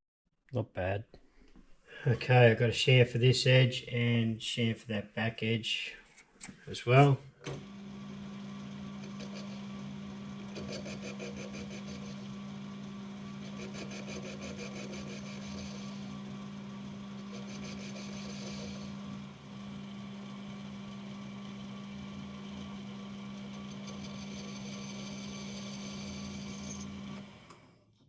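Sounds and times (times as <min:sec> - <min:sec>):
lathe tool cutting ticking: 0:07.4 - 0:27.4
metal lathe humming: 0:07.4 - 0:27.7.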